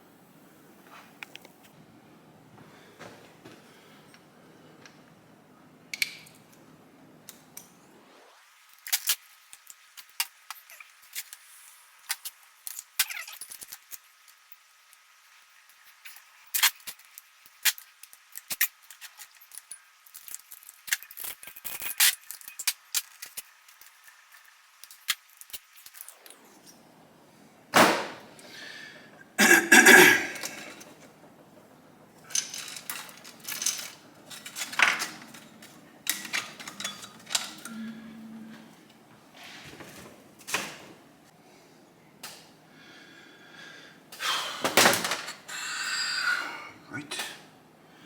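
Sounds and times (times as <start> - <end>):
metal parts clinking: 32.2 - 37.8.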